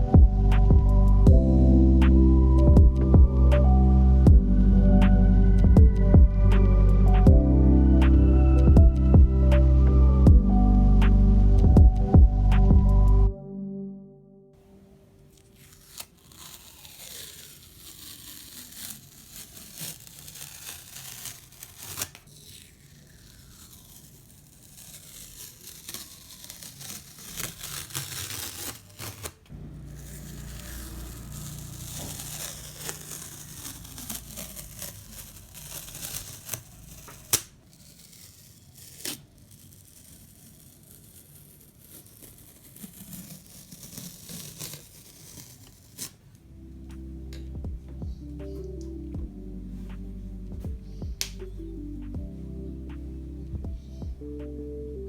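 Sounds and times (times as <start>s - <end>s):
masking tape peeling off paper: 15.3s - 46.5s.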